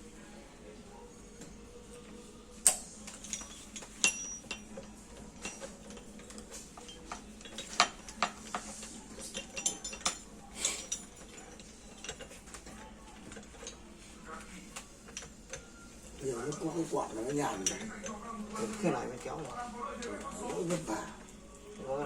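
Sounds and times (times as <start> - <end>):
metallic clinks of tools: 2.7 - 12.4, 15.1 - 18.2.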